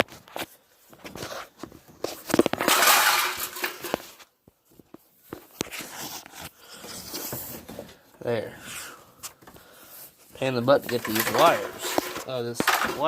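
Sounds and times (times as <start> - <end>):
clicks and knocks of metal parts: 2.3 - 4.2, 10.9 - 13.0
loud scraping rustling: 10.4 - 13.0.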